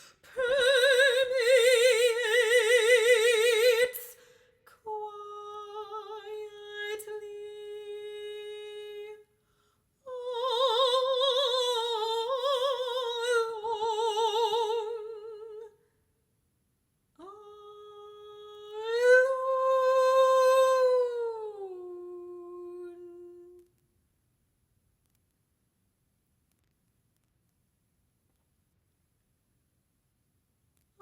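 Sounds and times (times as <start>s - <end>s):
classical voice singing: 0.0s - 9.3s, 10.1s - 15.8s, 17.2s - 23.6s.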